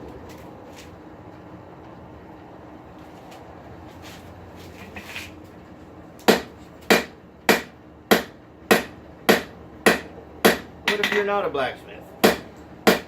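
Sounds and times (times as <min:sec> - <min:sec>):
steady low hum: 0:00.0 - 0:13.0
hammer striking anvil: 0:06.3 - 0:11.2, 0:12.2 - 0:13.0.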